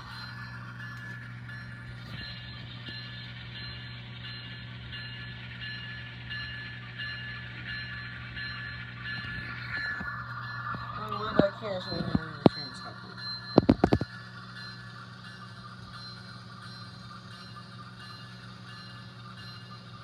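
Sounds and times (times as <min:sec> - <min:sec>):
model locomotive bell ringing: 0:00.0 - 0:20.0
low engine hum from speaker: 0:10.8 - 0:14.1.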